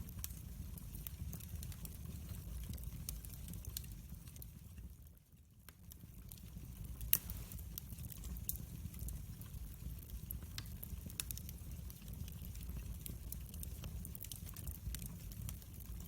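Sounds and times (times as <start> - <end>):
fire low rumble: 0.0 - 5.1, 5.9 - 16.0
wood fire popping and snapping: 0.0 - 16.0.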